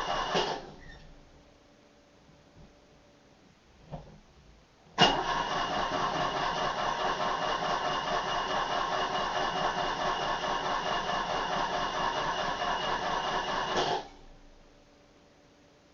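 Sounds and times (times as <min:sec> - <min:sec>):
starter motor cranking engine: 0:00.0 - 0:00.7, 0:05.0 - 0:14.1.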